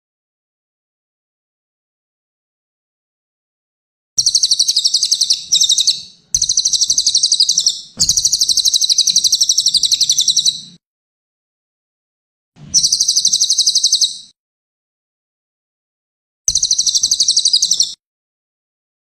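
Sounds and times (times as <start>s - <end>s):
bird singing rapid high trills: 4.2s - 10.8s, 12.8s - 14.3s, 16.5s - 18.0s.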